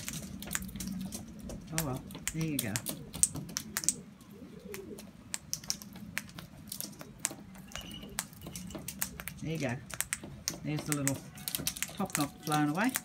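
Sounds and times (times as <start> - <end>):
beaks pecking seed on hard surface: 0.0 - 13.0
soft dove call: 2.8 - 5.4
faint bird chirps: 7.5 - 8.7.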